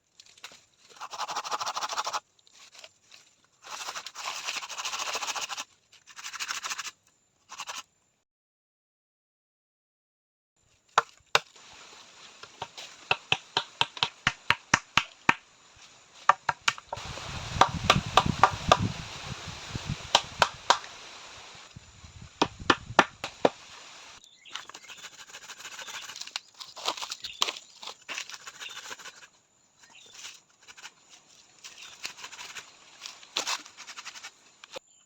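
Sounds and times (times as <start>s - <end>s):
wood being chopped: 11.0s - 11.6s, 12.4s - 15.5s, 16.2s - 19.0s, 20.0s - 20.9s, 22.4s - 23.7s.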